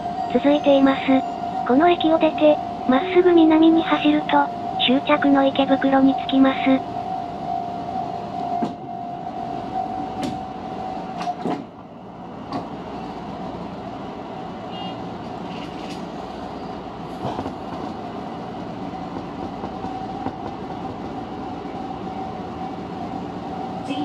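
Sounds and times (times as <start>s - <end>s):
electric train running noise: 12.4s - 24.0s.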